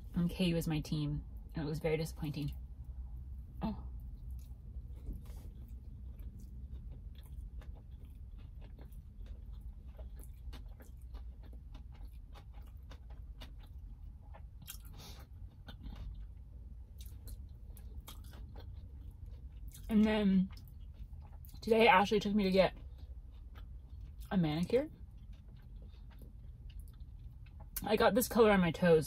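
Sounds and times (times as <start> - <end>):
steady low hum: 0.0 - 29.0
crunchy chewing: 4.0 - 21.6, 22.7 - 27.8.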